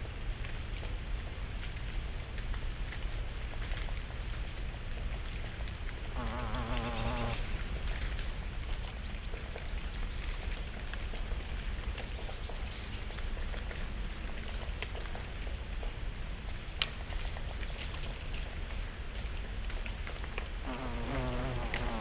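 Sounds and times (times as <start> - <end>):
thin high songbird calls: 20.7 - 22.0.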